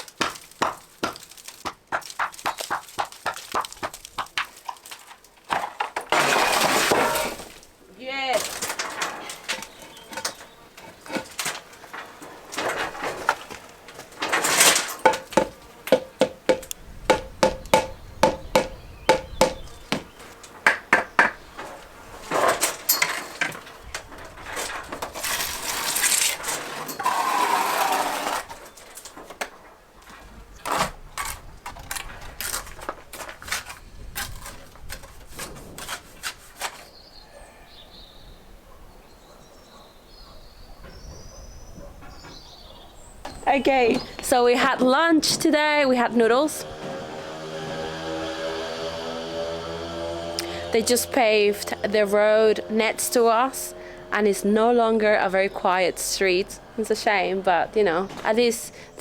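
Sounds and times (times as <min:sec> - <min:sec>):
trowel tapping on bricks: 0:00.0 - 0:04.6, 0:15.0 - 0:21.5
trowel scraping mortar: 0:05.0 - 0:07.7, 0:08.3 - 0:16.4, 0:24.5 - 0:28.7, 0:32.3 - 0:37.0
faint bird chirps: 0:36.9 - 0:44.2.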